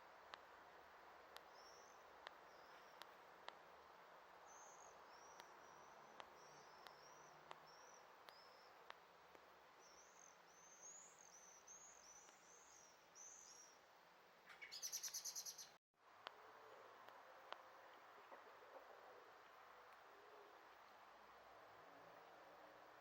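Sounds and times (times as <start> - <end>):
songbird chirps: 0.0 - 15.8.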